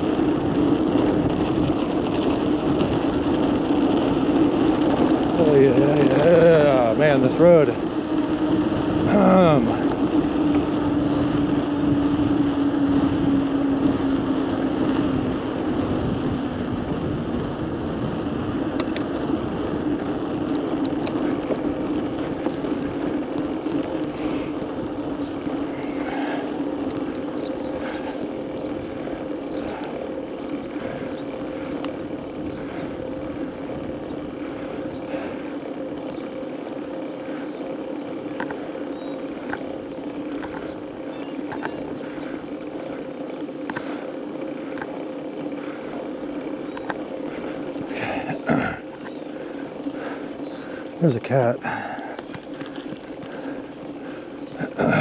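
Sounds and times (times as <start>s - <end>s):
wind on microphone: 0.0s - 6.8s, 8.0s - 35.5s
bicycle riding on road: 0.0s - 55.0s
steady hum: 17.6s - 55.0s.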